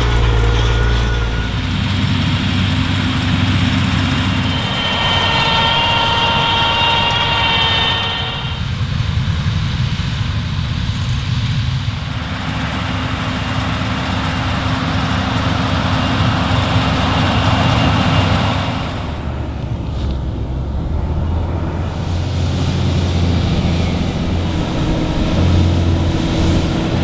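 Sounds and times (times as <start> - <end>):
diesel engine running under load: 0.0 - 27.0.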